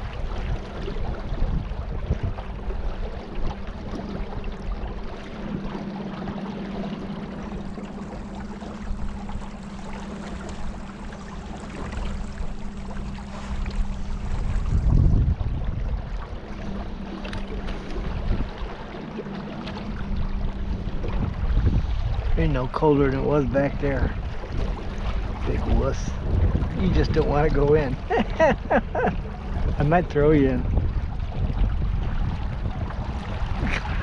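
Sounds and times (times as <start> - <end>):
boat motor humming: 0.0 - 34.0
low rumble: 0.0 - 34.0
rushing water: 0.0 - 34.0
wind: 0.0 - 34.0.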